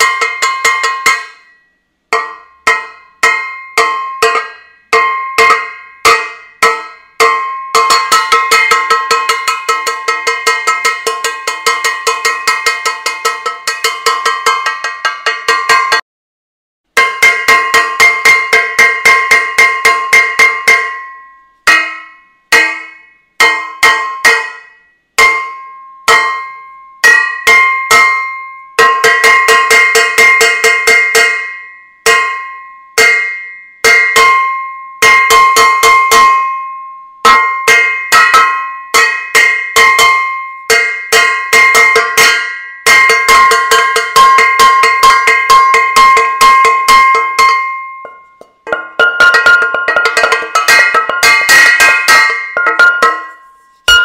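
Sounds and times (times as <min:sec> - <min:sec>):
metal saucepan clanging: 0:37.3 - 0:54.0.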